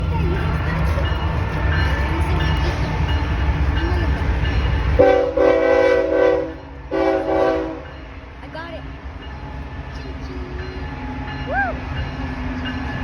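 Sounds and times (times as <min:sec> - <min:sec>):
freight train rumbling: 0:00.0 - 0:13.0
locomotive air horn chord: 0:05.0 - 0:07.9.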